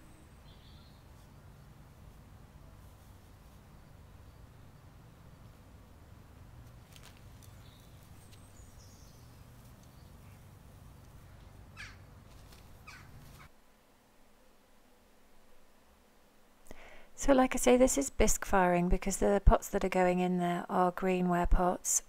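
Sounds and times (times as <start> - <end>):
low steady rumble: 0.0 - 13.5
faint bird calls: 7.5 - 12.1, 12.8 - 13.5
short harsh bird calls: 11.8 - 12.1, 12.8 - 13.5.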